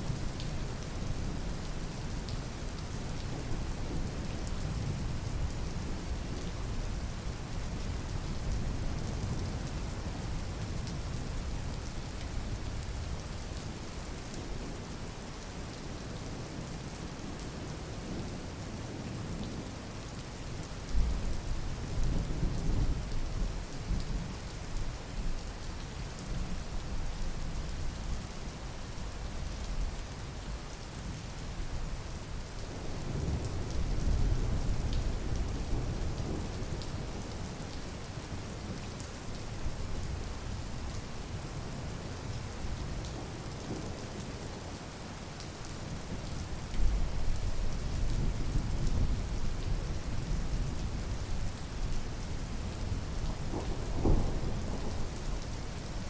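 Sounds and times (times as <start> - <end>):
steady rain falling: 0.0 - 56.0
low thunder rumbles: 52.9 - 55.4.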